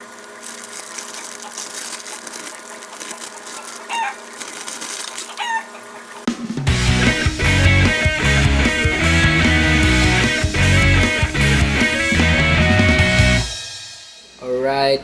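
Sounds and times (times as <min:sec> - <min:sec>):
chicken squawks: 0:03.6 - 0:04.4, 0:05.2 - 0:06.3
loud guitar music: 0:06.7 - 0:13.6.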